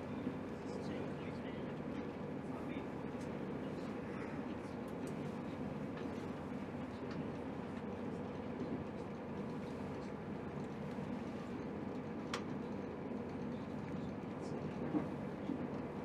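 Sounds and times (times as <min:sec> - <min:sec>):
train running rumble: 0:05.3 - 0:16.0.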